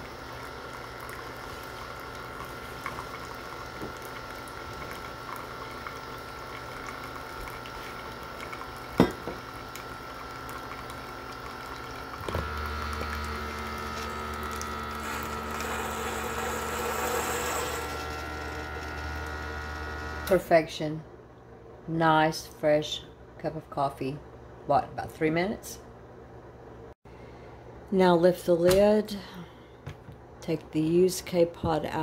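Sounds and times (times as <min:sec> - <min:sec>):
coffee trickling into mug: 0:00.0 - 0:19.9
coffee maker pump running: 0:00.0 - 0:20.7.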